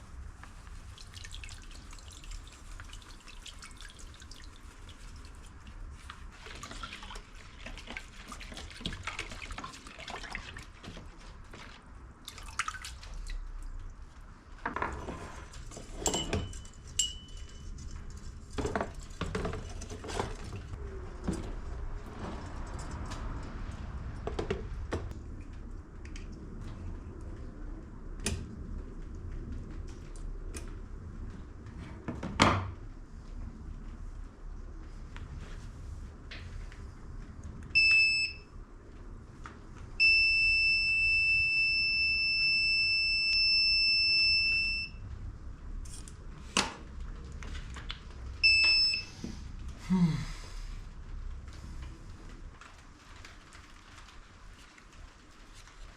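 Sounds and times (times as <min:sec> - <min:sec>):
water dripping and splashing: 0:00.1 - 0:14.7.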